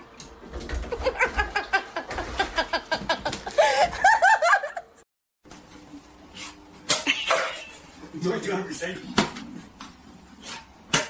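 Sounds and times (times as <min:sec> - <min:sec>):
person laughing: 0:00.9 - 0:05.0.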